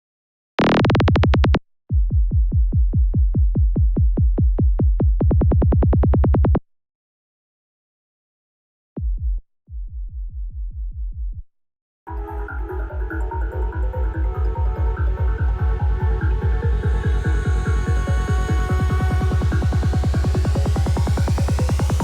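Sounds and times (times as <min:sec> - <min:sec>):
synthesized kick and rolling bass: 0:12.1 - 0:22.0.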